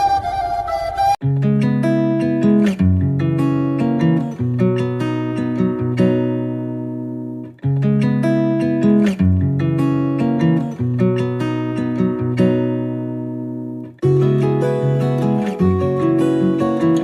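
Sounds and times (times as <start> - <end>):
acoustic guitar picking melody: 0.2 - 17.0.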